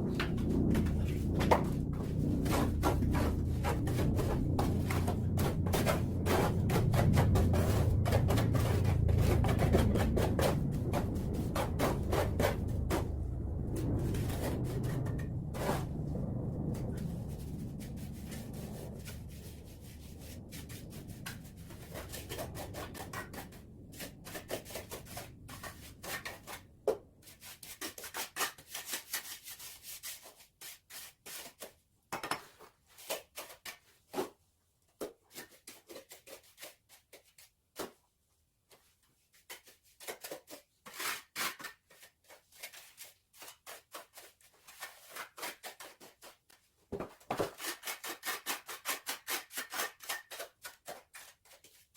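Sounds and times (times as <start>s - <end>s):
low rumble: 0.0s - 26.9s
trowel scraping mortar: 27.3s - 31.7s, 39.5s - 46.4s, 47.3s - 51.9s.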